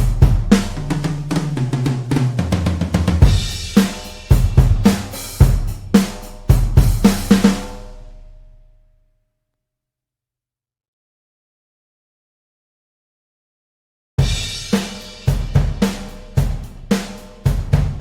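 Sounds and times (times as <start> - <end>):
drum kit playing a groove: 0.0 - 8.3, 14.2 - 18.0.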